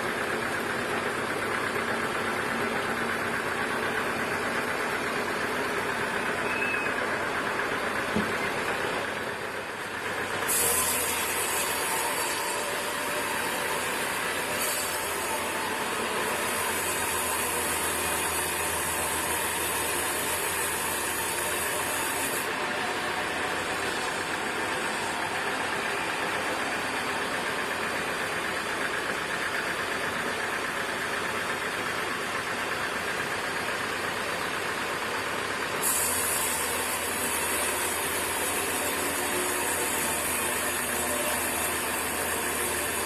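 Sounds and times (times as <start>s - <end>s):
sawmill machinery running: 0.0s - 43.0s.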